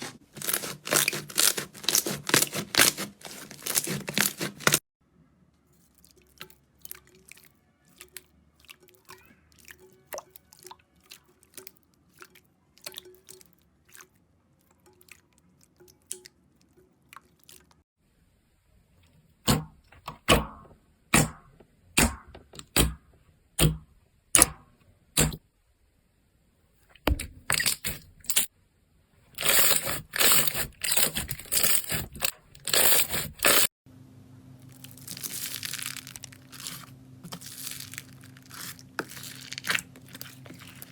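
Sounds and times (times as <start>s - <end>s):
slime crackling and popping: 34.7s - 40.9s.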